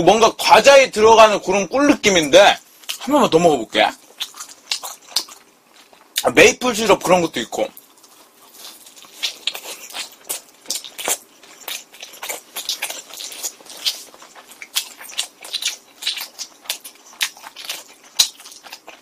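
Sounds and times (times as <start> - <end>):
person chewing pizza: 2.6 - 6.3, 7.6 - 19.0.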